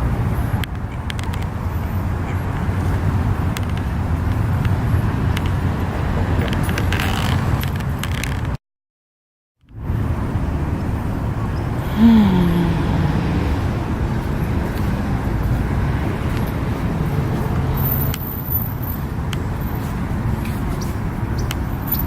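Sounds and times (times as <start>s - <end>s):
road traffic rumble: 0.0s - 8.6s, 9.6s - 22.0s.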